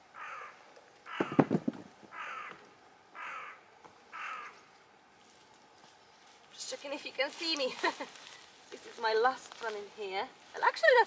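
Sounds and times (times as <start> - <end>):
bird calling: 0.1 - 4.7.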